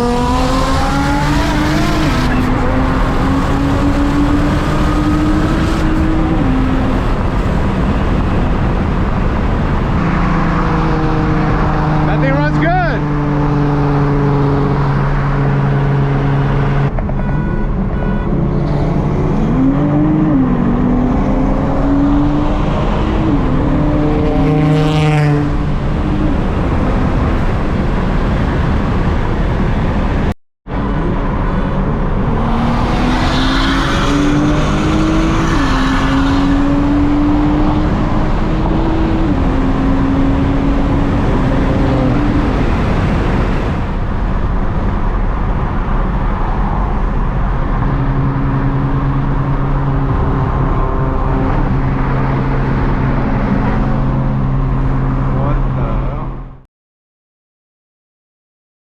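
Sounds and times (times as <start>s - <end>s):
car engine accelerating hard: 0.0s - 17.0s, 30.7s - 56.6s.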